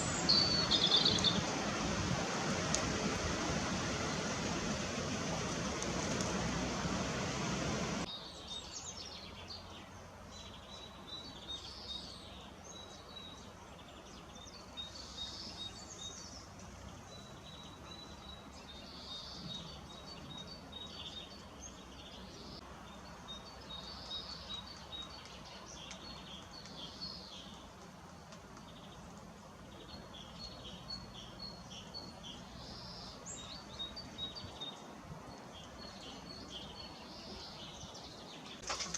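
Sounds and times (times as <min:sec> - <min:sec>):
loud steady hiss: 0:00.0 - 0:08.1
small birds chirping: 0:00.0 - 0:38.9.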